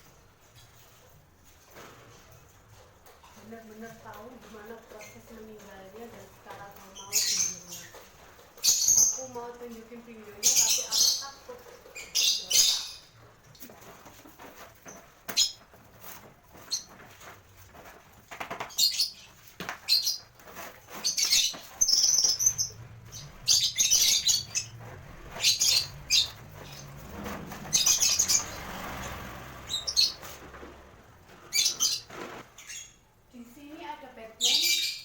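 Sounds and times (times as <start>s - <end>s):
lovebirds chirping: 3.4s - 15.9s, 18.5s - 35.0s.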